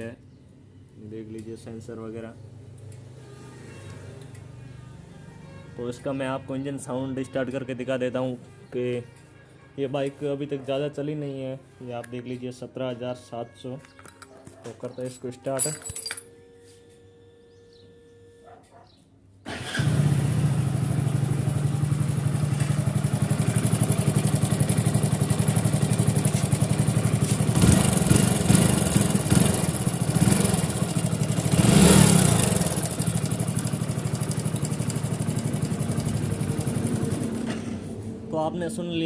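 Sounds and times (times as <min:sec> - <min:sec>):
motorcycle engine starting and revving: 0:19.5 - 0:38.3.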